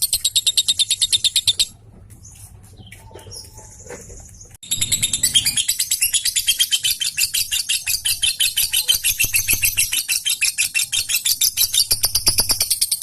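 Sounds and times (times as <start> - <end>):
lovebird rapid chatter: 2.8 - 13.0.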